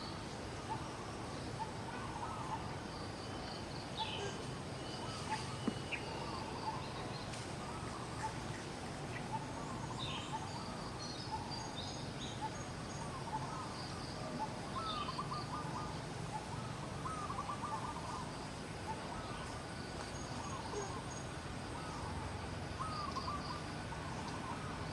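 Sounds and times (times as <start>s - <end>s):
steady background hiss: 0.0s - 24.9s
trilled calls: 0.6s - 18.3s.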